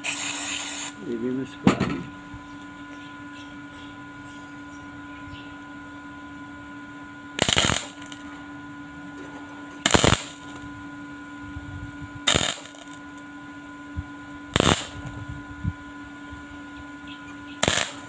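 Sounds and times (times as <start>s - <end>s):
crackling arc welding bursts: 0.0s - 1.1s, 7.4s - 8.3s, 9.8s - 10.7s, 12.2s - 13.2s, 14.5s - 15.3s, 17.6s - 18.0s
steady electrical hum: 0.0s - 18.0s.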